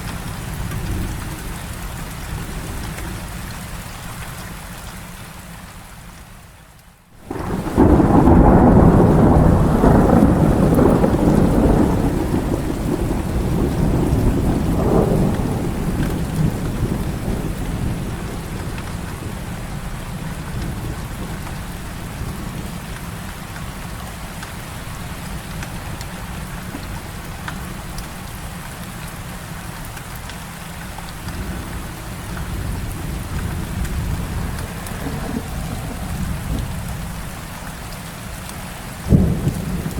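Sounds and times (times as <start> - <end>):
heavy rain: 0.0 - 39.9
thunder rumbling: 7.2 - 28.3, 31.0 - 38.2, 38.8 - 39.9.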